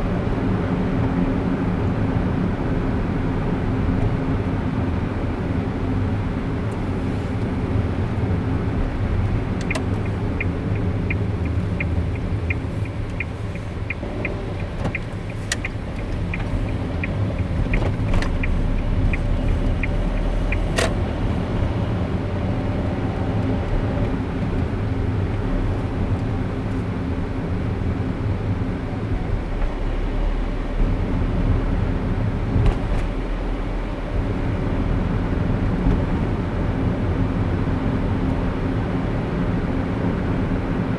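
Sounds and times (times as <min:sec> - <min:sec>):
car road and engine rumble: 0:00.0 - 0:40.9
turn-signal indicator ticking: 0:09.3 - 0:21.4.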